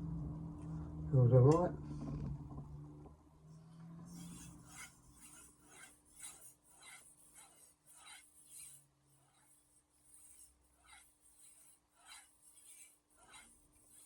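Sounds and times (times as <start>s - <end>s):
faint steady hum: 0.0s - 5.6s
knife scraping on whetstone: 4.1s - 14.0s.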